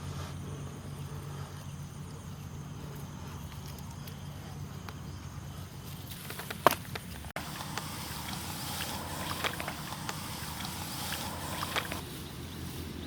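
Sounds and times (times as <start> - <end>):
water sloshing and splashing: 5.8 - 12.1.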